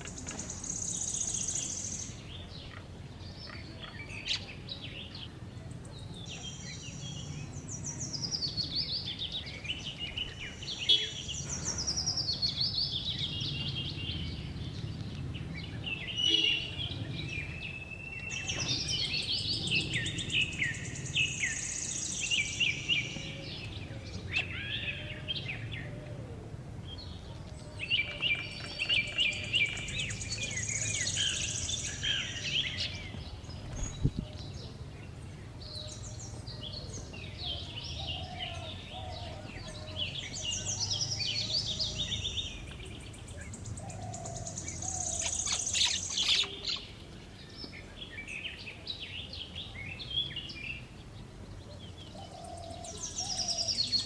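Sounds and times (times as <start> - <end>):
birds chirping and trilling: 0.0 - 54.0
low background noise: 0.0 - 54.0.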